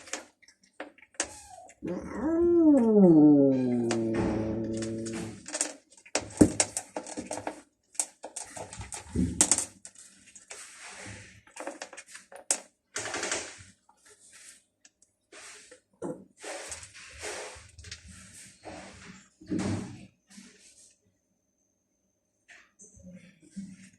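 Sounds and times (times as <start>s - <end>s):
cats crunching food: 2.7s - 10.6s.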